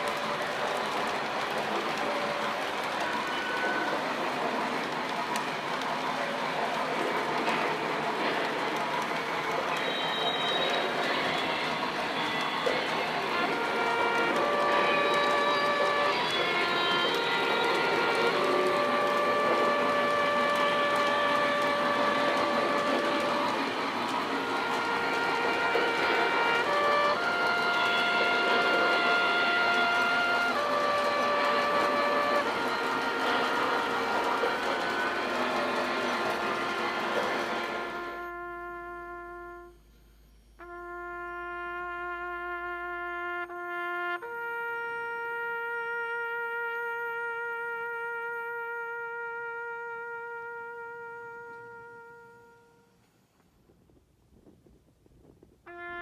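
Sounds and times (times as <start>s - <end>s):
toy train running: 0.0s - 39.2s
solo trumpet playing: 9.7s - 53.1s, 55.7s - 56.0s.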